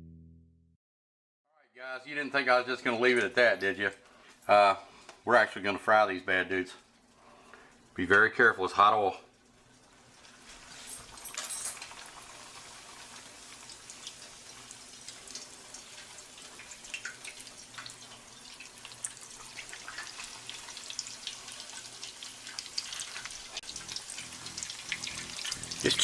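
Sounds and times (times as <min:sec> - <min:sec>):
food frying in hot oil: 0:09.2 - 0:26.0
oil crackling and popping: 0:09.3 - 0:26.0.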